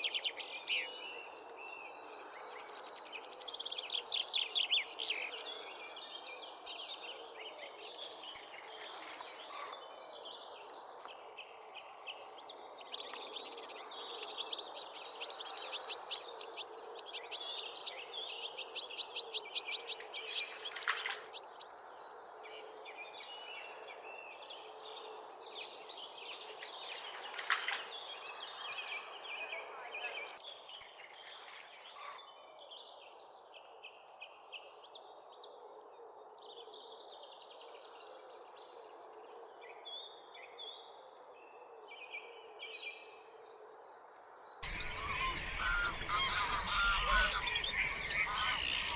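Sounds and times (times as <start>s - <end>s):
birds chirping and trilling: 8.2s - 9.8s, 26.3s - 32.1s, 44.6s - 48.9s
bird singing high phrase: 8.4s - 9.3s, 30.8s - 31.7s, 44.6s - 48.9s.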